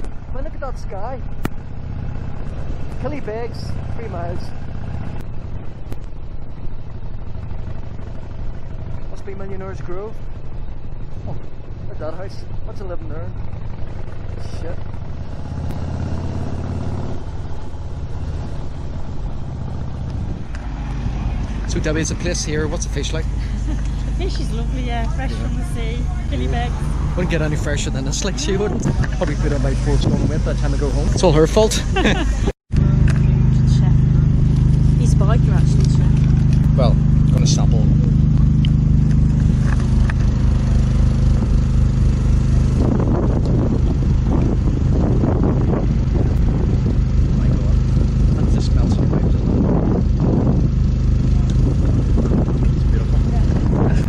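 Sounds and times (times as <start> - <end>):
motorcycle engine running: 0.0 - 54.0
rough busy mechanical sound: 0.0 - 54.0
wind noise: 15.2 - 54.0.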